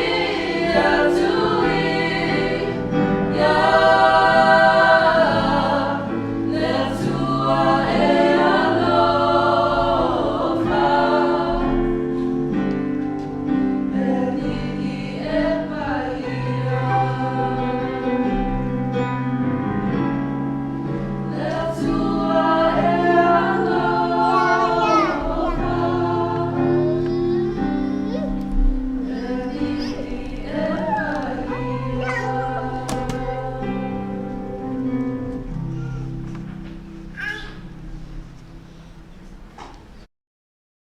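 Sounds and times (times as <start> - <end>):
group singing gospel song: 0.0 - 19.9, 21.1 - 27.8, 28.4 - 35.5.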